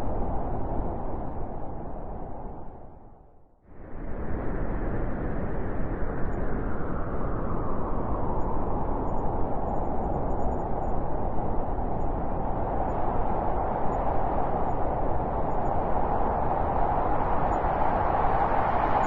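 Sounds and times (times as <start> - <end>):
wind blowing: 3.8 - 19.0.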